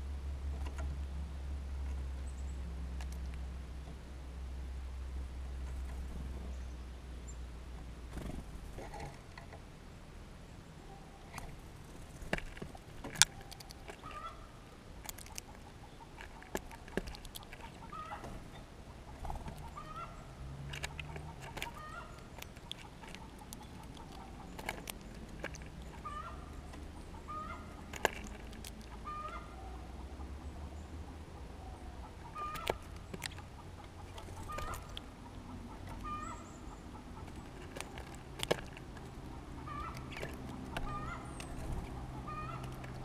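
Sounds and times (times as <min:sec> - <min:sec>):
sharp clicks and taps: 0:32.4 - 0:35.1.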